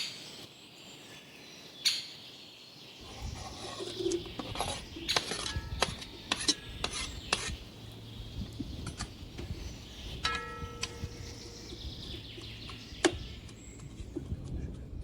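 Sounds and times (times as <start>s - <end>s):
metal spoon scraping a pot: 3.0s - 7.7s.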